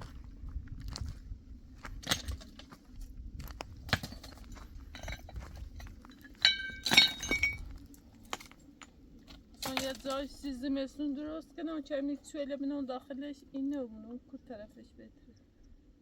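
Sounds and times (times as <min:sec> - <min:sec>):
objects knocking and clattering: 0:03.9 - 0:10.3
ringing clinks: 0:06.1 - 0:07.6.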